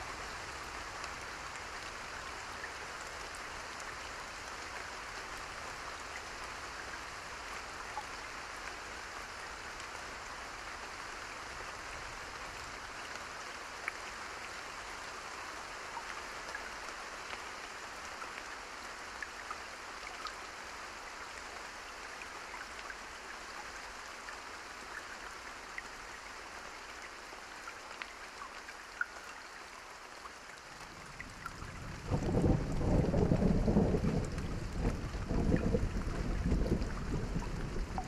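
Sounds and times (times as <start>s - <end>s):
steady rain: 0.0s - 38.0s
rolling thunder rumble: 31.7s - 38.0s.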